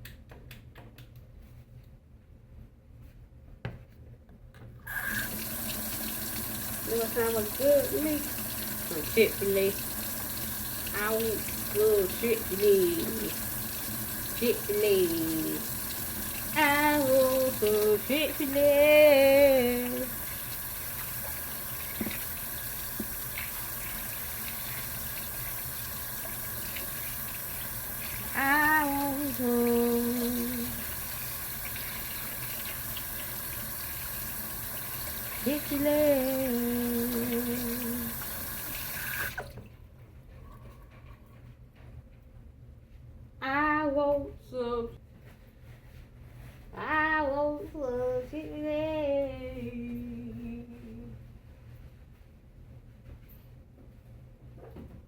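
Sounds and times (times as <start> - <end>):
tap water running into sink: 4.9 - 39.7
woman singing: 6.9 - 9.8, 10.9 - 13.4, 14.4 - 15.7, 16.5 - 20.2, 28.3 - 30.8, 35.4 - 38.2, 43.4 - 45.0, 46.8 - 51.2.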